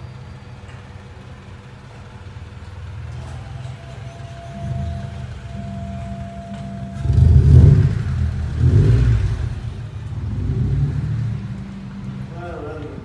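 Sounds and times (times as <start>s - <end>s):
car engine driving past: 3.0s - 13.0s.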